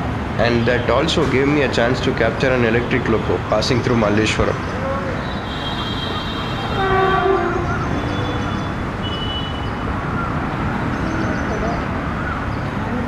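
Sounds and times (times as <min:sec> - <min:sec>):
locomotive horn: 0:05.2 - 0:09.6.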